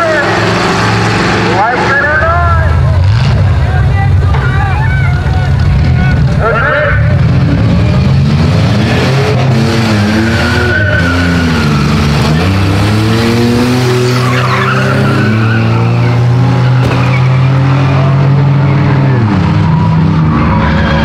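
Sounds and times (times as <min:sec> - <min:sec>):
car engines revving: 0:00.0 - 0:21.0
tyre screech: 0:09.8 - 0:18.0.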